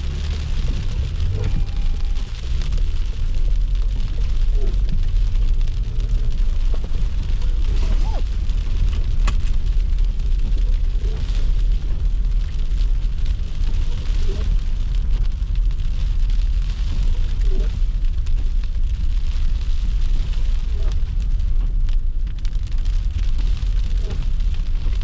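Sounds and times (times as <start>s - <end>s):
car driving rumble: 0.0s - 25.0s.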